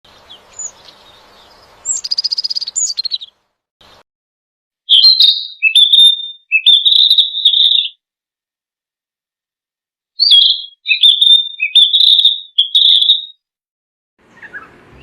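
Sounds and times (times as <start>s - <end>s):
drawn-out high bird notes: 0.1s - 4.0s, 4.9s - 8.0s, 10.2s - 13.4s, 14.2s - 15.0s
songbird chirping: 0.1s - 4.0s, 4.9s - 8.0s, 10.2s - 13.4s, 14.2s - 15.0s.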